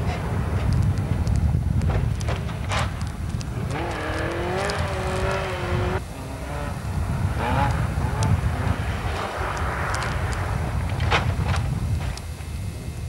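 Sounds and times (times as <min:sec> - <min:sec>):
low rumble: 0:00.0 - 0:13.0
rally car engine revving: 0:02.6 - 0:11.6.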